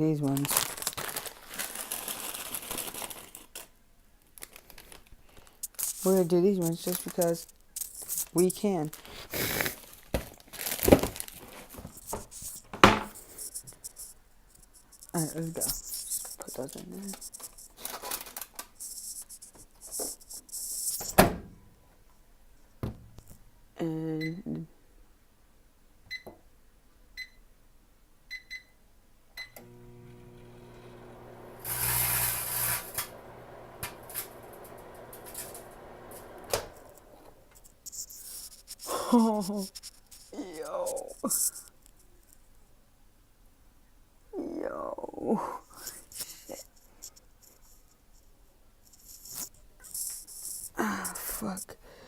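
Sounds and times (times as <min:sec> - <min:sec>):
crisp packet crackling: 0:00.0 - 0:12.6, 0:13.2 - 0:21.0, 0:37.6 - 0:42.3
foil snack bags crinkling: 0:00.0 - 0:12.6, 0:14.8 - 0:20.9, 0:37.6 - 0:41.8
microwave oven humming: 0:29.6 - 0:37.4
microwave click: 0:32.8 - 0:36.8.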